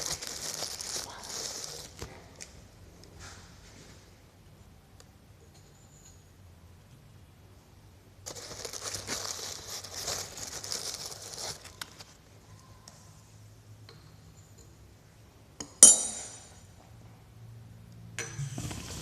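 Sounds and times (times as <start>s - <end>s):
rustling crinkling handling: 0.0s - 2.5s, 8.2s - 12.4s.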